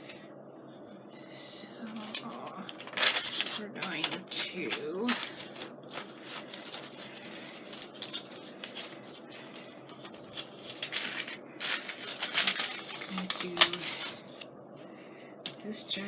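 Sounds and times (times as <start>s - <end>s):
paper rustling and scraping: 1.8s - 14.4s
sticker sheet crinkling: 1.8s - 14.4s.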